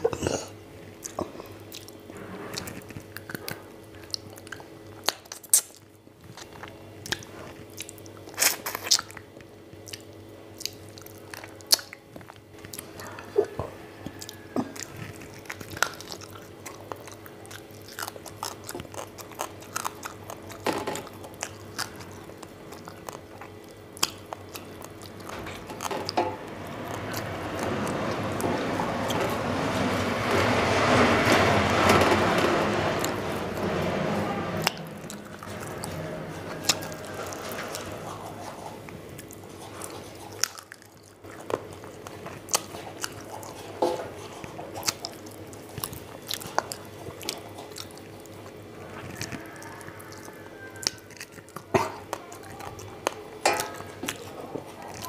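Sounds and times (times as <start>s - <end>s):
chewing and biting: 0.0s - 30.5s, 34.7s - 55.0s
faint steady hum: 0.0s - 55.0s
rumbling noise: 24.5s - 39.6s.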